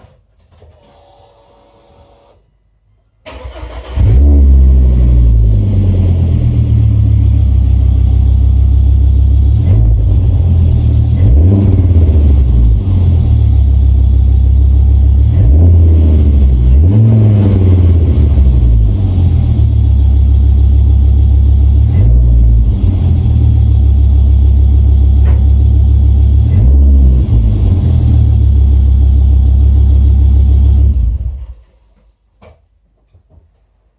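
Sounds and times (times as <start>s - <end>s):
car engine cranking: 3.3s - 4.4s
car engine idling and revving: 3.6s - 31.6s.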